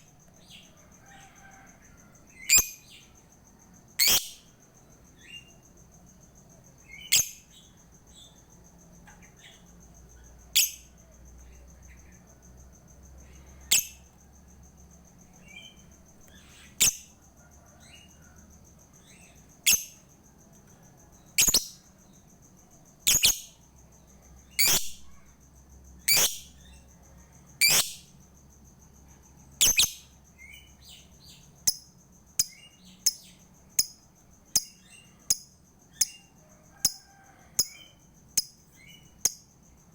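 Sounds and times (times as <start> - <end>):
lovebird shrill calls: 2.5 - 2.8, 4.0 - 4.4, 23.1 - 23.4, 24.6 - 25.0, 26.1 - 26.4, 27.6 - 28.0, 29.6 - 30.0.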